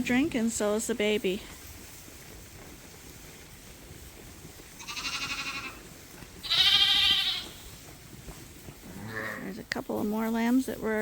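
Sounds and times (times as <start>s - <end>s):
lambs bleating: 4.8s - 7.7s, 8.9s - 9.5s.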